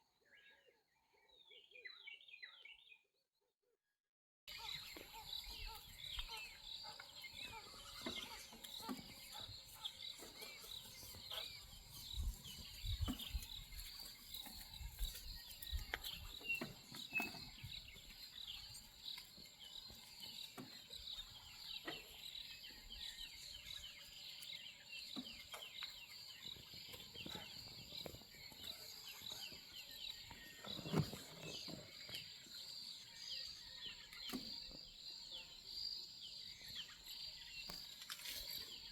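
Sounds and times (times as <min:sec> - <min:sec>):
chorus of high chirping calls: 0:04.5 - 0:34.5.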